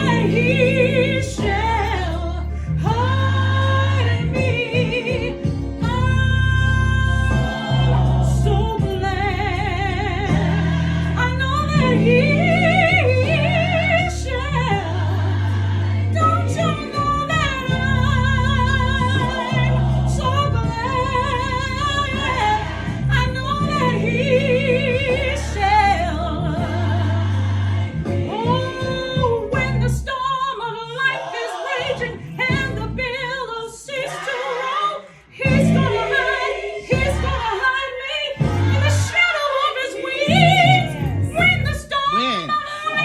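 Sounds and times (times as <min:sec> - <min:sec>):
low held bass notes: 0:00.0 - 0:30.1, 0:35.5 - 0:37.7, 0:38.3 - 0:39.2, 0:40.1 - 0:43.0
person singing with vibrato: 0:33.9 - 0:43.0.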